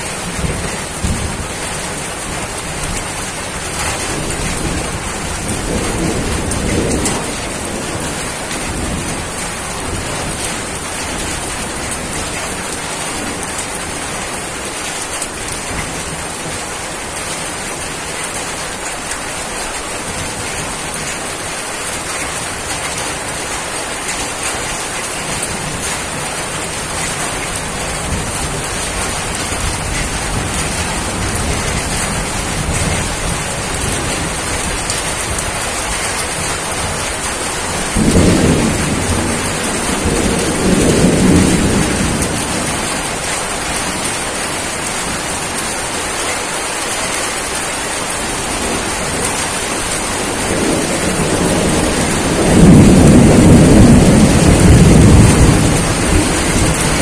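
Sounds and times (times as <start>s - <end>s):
steady rain falling: 0.0s - 57.0s
thunder rolling: 28.0s - 43.8s, 48.6s - 57.0s.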